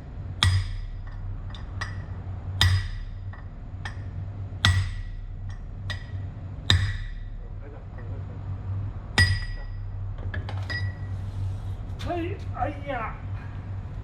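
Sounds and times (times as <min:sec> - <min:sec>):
steady low hum: 0:00.0 - 0:14.0
hammer striking metal: 0:00.4 - 0:07.4, 0:09.2 - 0:11.0.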